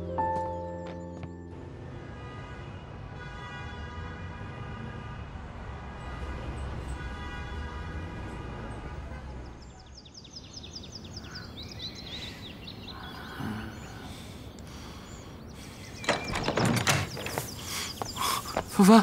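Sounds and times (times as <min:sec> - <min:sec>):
small birds chirping: 0:09.4 - 0:19.0.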